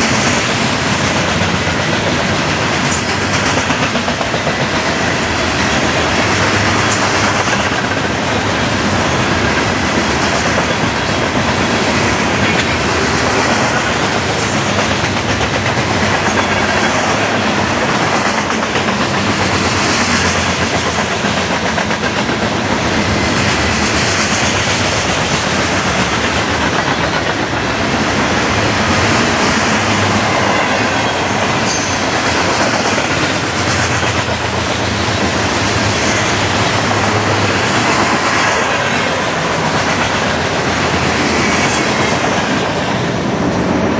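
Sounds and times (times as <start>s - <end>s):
freight train wheels clattering: 0.0s - 43.9s.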